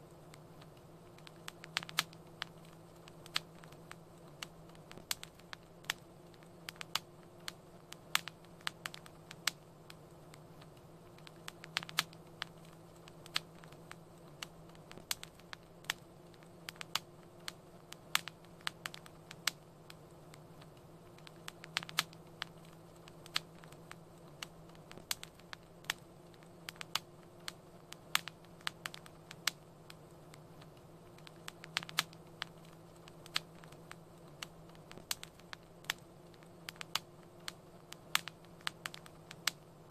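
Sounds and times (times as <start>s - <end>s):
low steady hum: 0.0s - 39.9s
wood fire crackling: 0.0s - 39.9s.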